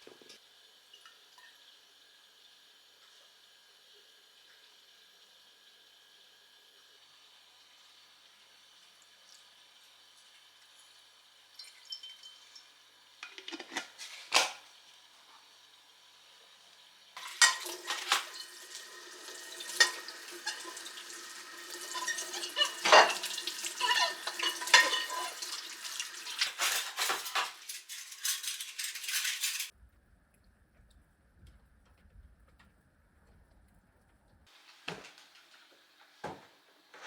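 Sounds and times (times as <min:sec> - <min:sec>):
dishes and cutlery clattering: 0:13.2 - 0:14.6, 0:17.2 - 0:18.8, 0:19.4 - 0:29.7.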